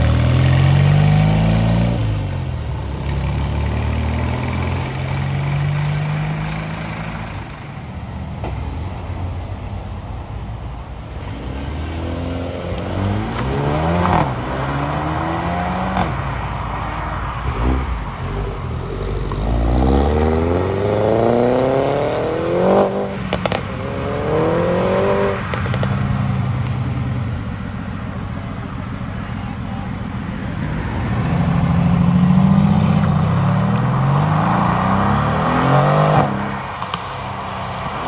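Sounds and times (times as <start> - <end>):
sports car engine accelerating: 11.2 - 29.2, 29.8 - 38.0
exhaust cracks: 21.9 - 29.0.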